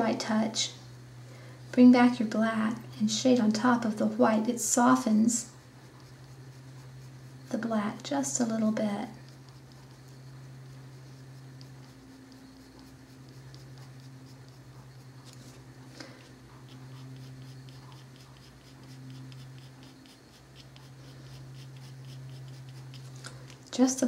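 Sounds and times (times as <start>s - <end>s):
pencil scratching on paper: 4.8s - 23.2s.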